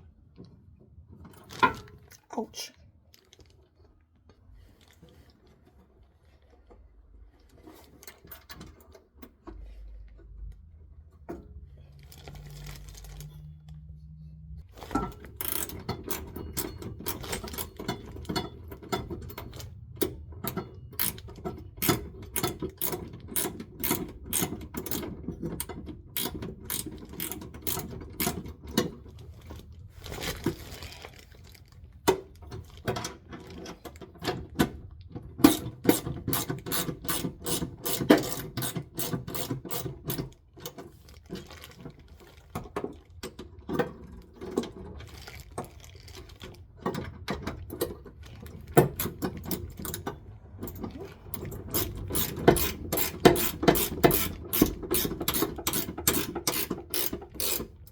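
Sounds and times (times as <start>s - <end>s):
ratchet wrench clicking: 15.4s - 17.7s, 21.0s - 21.2s, 21.8s - 28.4s, 35.4s - 40.2s, 51.3s - 57.8s.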